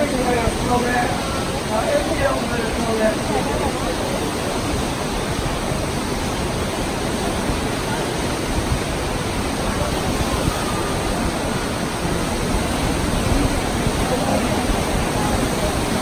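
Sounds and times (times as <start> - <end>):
train rushing noise: 0.0 - 16.0
wind buffeting microphone: 0.0 - 16.0.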